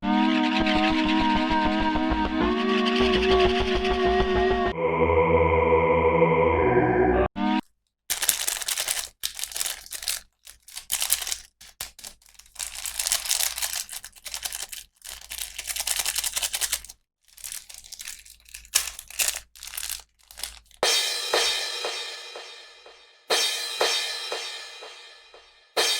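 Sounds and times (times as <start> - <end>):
plastic packaging crinkling and tearing: 8.1 - 20.9
ringing cymbal-like crash: 20.8 - 25.9.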